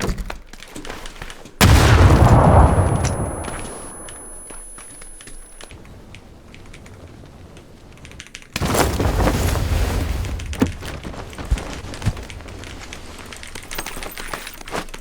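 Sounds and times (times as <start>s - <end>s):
video game gunfire and impacts: 1.6s - 5.4s.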